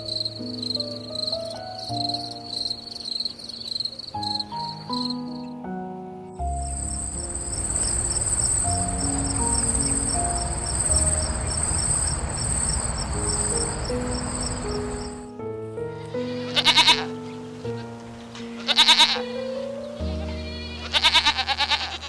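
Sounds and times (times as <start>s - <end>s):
insect chirping trill: 0.0s - 5.6s, 6.4s - 15.4s
background music: 0.0s - 22.0s
short bleating call: 20.3s - 22.0s.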